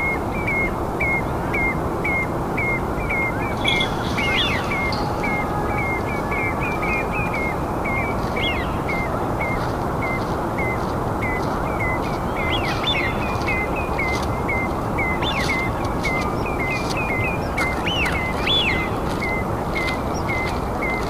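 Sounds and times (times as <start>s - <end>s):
birds chirping: 0.0s - 21.0s
steady rushing background noise: 0.0s - 21.0s.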